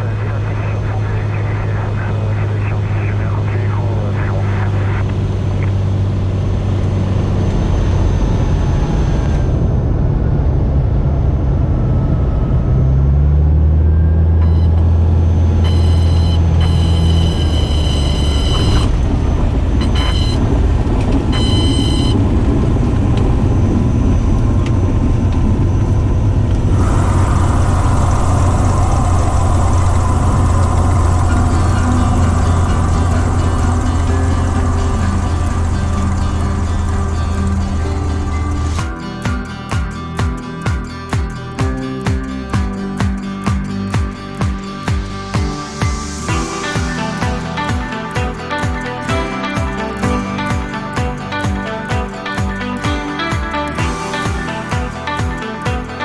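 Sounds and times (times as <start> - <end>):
aircraft engine and propeller drone: 0.0 - 15.7, 16.3 - 40.6
high warning tone bursts: 14.0 - 22.5, 26.6 - 56.0
wind hiss and rush: 26.2 - 35.0.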